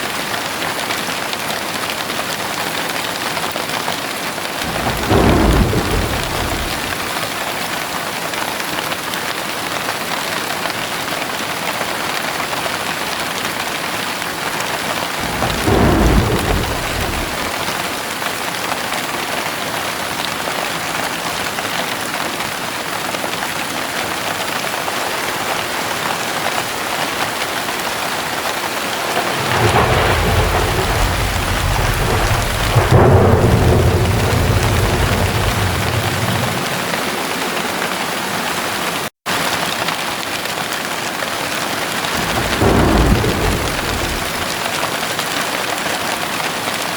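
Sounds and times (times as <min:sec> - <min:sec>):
steady rain: 0:00.0 - 0:46.9
thunder rumbling: 0:04.6 - 0:07.4, 0:14.4 - 0:18.3, 0:28.2 - 0:38.8, 0:42.1 - 0:45.2.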